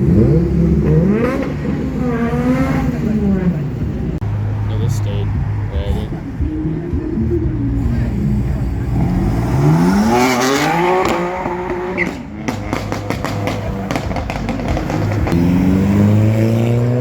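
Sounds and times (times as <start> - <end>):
car engine revving hard: 0.0 - 3.7, 8.6 - 17.0.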